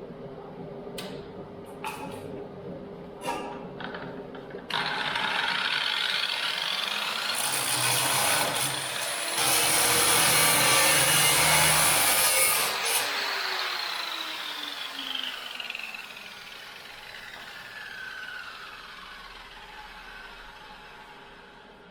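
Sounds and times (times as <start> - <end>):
angle grinder grinding steel: 4.7 - 16.4.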